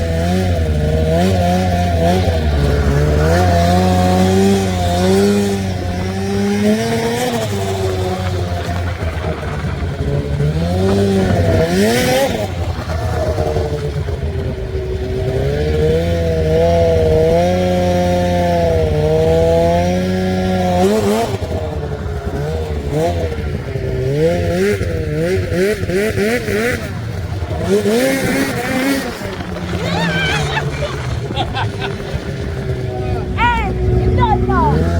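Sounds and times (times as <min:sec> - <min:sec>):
snowmobile engine revving: 0:00.0 - 0:34.9.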